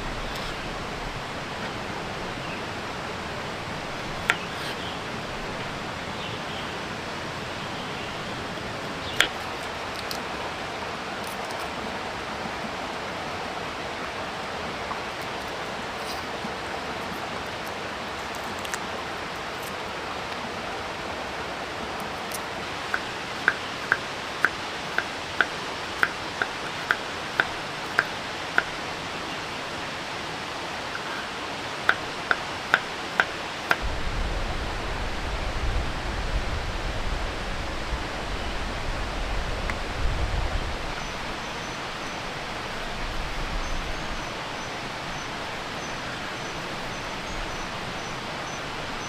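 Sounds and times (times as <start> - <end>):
low rumble: 0.0 - 4.2, 33.8 - 44.5
heavy rain hissing: 0.0 - 49.0.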